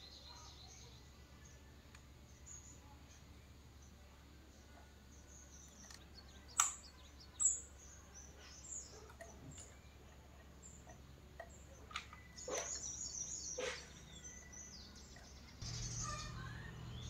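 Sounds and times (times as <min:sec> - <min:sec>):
high bird chirps: 0:05.3 - 0:17.0
sharp click: 0:06.6 - 0:06.9.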